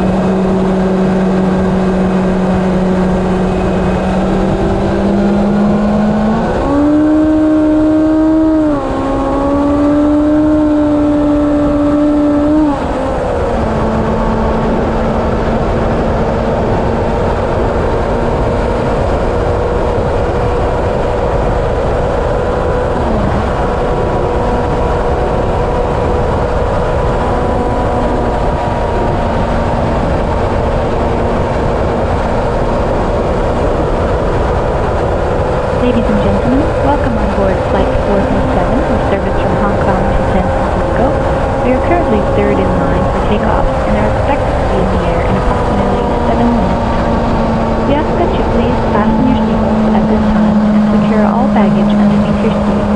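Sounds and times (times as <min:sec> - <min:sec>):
heavy wind noise: 0:00.0 - 0:52.9
motorcycle engine at highway speed: 0:00.0 - 0:52.9.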